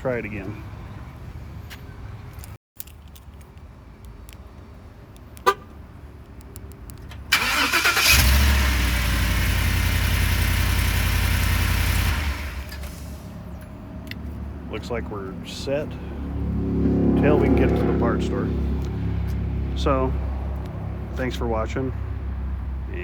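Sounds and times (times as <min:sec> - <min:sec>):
engine starter cranking: 0:07.3 - 0:10.0
car engine running: 0:08.0 - 0:13.6.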